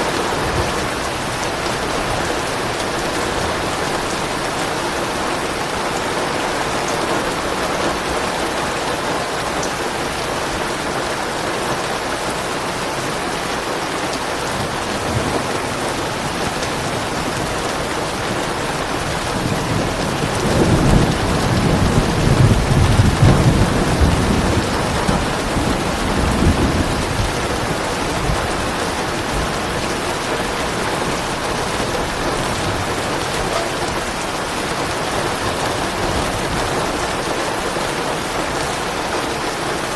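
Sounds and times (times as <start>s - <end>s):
steady rain: 0.0s - 39.9s
thunder rumbling: 13.6s - 37.8s.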